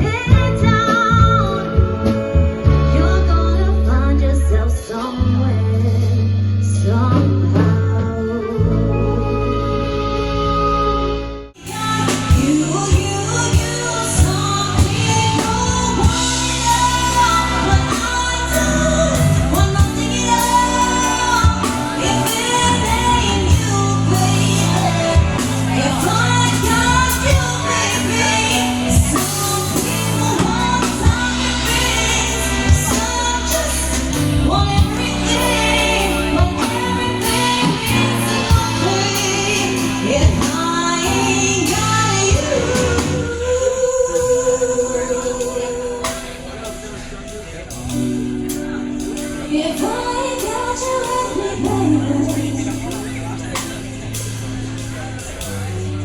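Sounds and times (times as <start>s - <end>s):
band playing: 0.0s - 56.0s
person singing: 11.6s - 56.0s.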